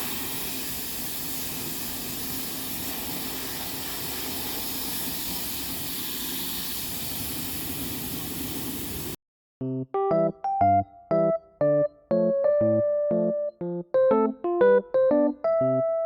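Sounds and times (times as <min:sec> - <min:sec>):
steady hiss: 0:00.0 - 0:09.2
piano note: 0:09.6 - 0:16.0.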